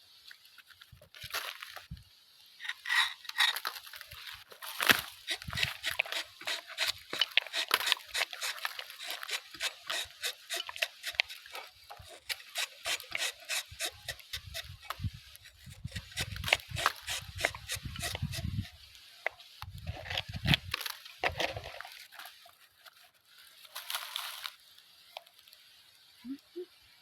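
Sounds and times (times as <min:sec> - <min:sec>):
knife scraping tree bark: 0:02.6 - 0:18.9.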